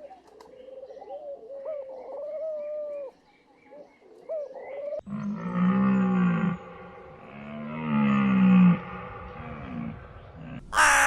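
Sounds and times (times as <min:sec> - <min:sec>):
deep drawn-out animal call: 0:05.0 - 0:11.0.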